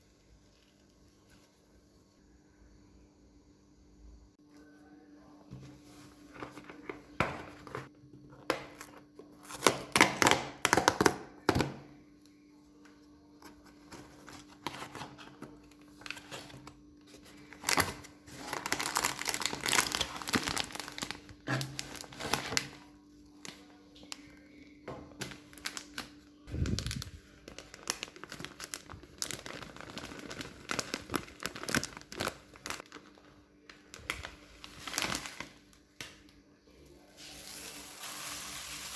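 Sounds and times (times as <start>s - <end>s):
faint steady hum: 0.0s - 38.9s
crinkling and rustling handling: 5.5s - 9.7s, 12.3s - 36.4s.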